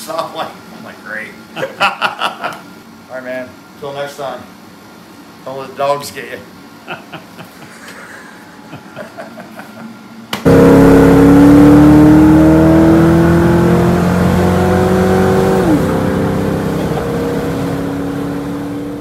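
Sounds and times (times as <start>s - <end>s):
car engine revving through gears: 10.4s - 19.0s.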